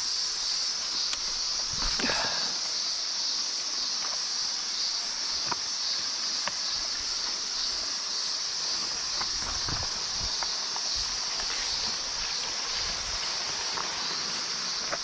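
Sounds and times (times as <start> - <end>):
insect chorus drone: 0.0 - 15.0
footsteps on dry ground: 6.3 - 15.0.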